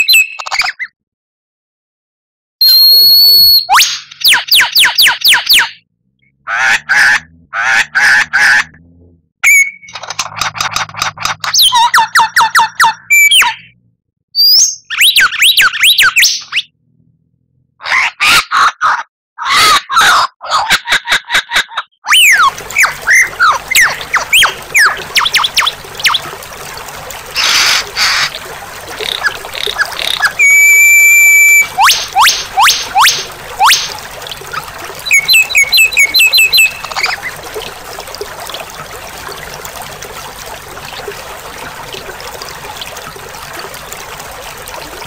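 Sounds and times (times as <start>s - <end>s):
bird song whistles: 0.0s - 0.9s, 2.6s - 5.8s, 9.4s - 9.9s, 11.6s - 13.7s, 14.4s - 16.7s, 30.4s - 33.8s, 35.0s - 36.9s
harsh rasping bird calls: 4.3s - 8.7s, 27.2s - 30.7s
songbird singing: 35.0s - 37.4s.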